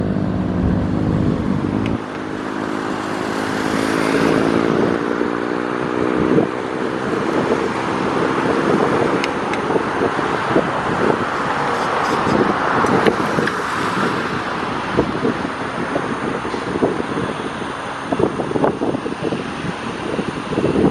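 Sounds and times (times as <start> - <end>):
propeller aircraft engine droning: 0.0 - 20.9
rushing noise: 6.1 - 20.9.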